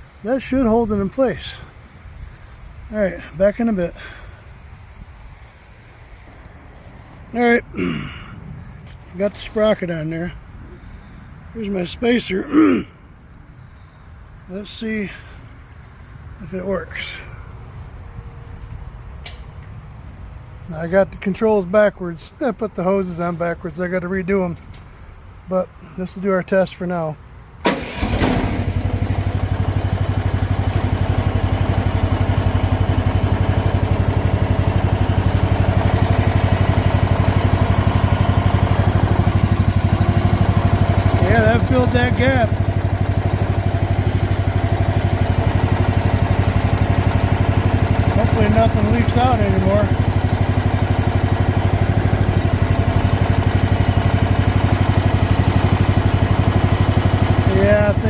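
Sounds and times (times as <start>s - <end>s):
excavator engine running: 27.6s - 58.0s.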